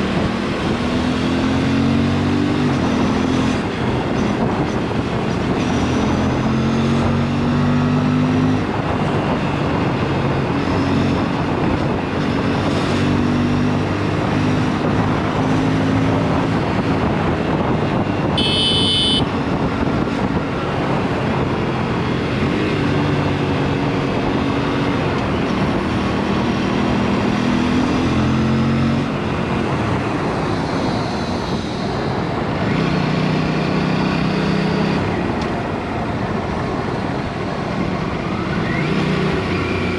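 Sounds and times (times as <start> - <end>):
wind rush: 8.4 - 18.5, 19.2 - 33.3
high-pitched beep: 18.4 - 19.3
motorcycle engine revving: 18.4 - 19.4.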